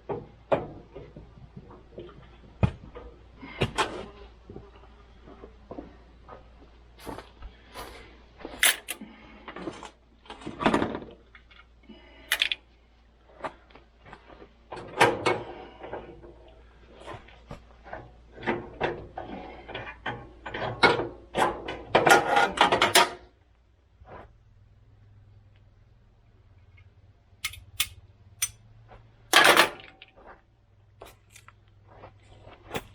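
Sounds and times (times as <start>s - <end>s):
hand tools and metal parts clanking: 7.0s - 11.1s, 12.0s - 12.6s, 17.9s - 23.3s, 26.7s - 30.4s, 31.0s - 32.9s.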